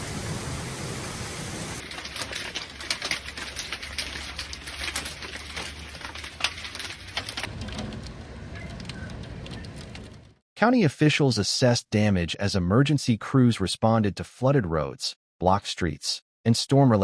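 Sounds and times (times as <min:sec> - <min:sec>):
soft steady rain: 0:00.0 - 0:10.0
heavy rain on hard surface: 0:00.0 - 0:10.2.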